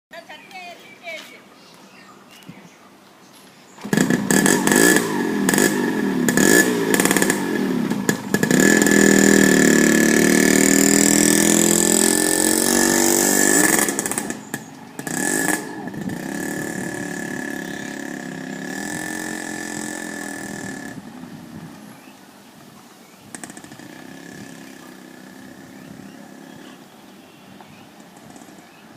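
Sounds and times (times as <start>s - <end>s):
motorcycle engine revving: 3.7s - 28.9s.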